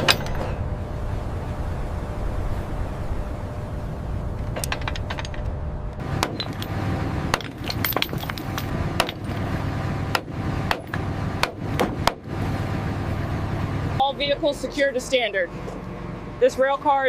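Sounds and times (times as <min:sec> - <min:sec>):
chains clanking against steel: 0:00.0 - 0:00.6, 0:06.2 - 0:09.5
steady low rumble: 0:00.0 - 0:17.0.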